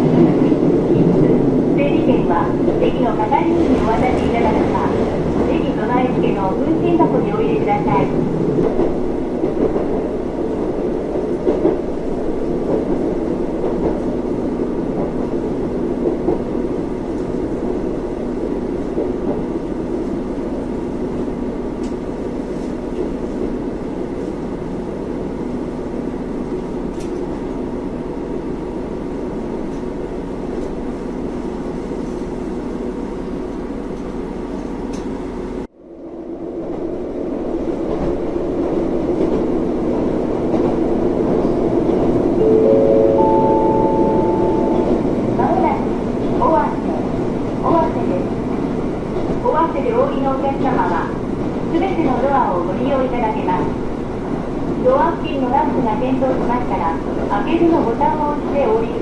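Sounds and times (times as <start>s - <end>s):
diesel train running from inside: 0.0s - 59.0s.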